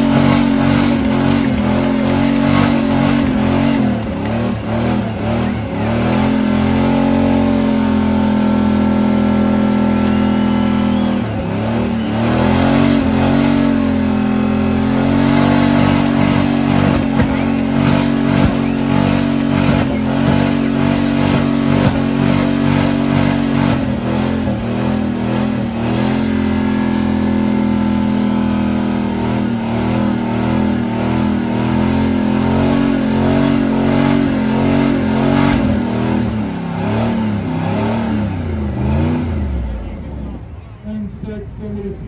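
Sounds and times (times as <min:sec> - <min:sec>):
tyres spinning on wet pavement: 0:00.0 - 0:05.8, 0:15.9 - 0:22.0
car engine at high revs: 0:00.0 - 0:40.8.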